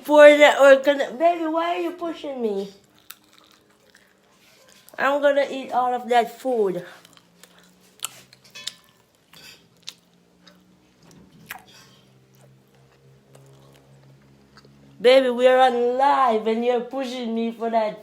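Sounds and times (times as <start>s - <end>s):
faint low hum: 0.0s - 18.0s
person chewing: 2.8s - 5.0s, 6.9s - 15.0s.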